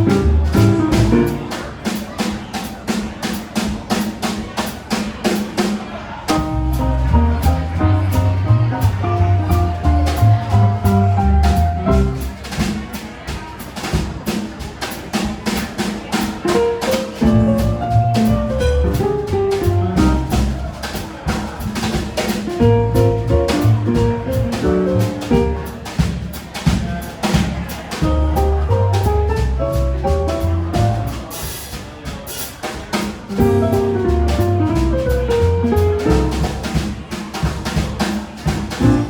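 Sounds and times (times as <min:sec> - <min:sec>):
walking bass: 0:00.0 - 0:01.6, 0:06.3 - 0:12.5, 0:16.5 - 0:20.8, 0:21.6 - 0:26.8, 0:28.0 - 0:31.4, 0:33.2 - 0:36.8, 0:38.7 - 0:39.0
jazz piano: 0:00.0 - 0:39.0.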